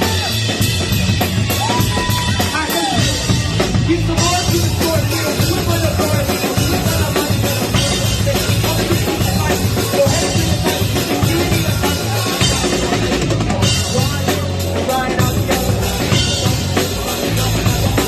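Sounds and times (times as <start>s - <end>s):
drum kit: 0.0s - 18.0s
rock band playing: 0.0s - 18.0s.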